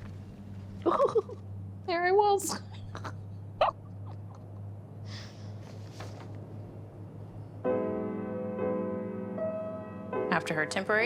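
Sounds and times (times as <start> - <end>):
low steady hum: 0.0 - 11.0
sustained piano chord: 7.3 - 11.0.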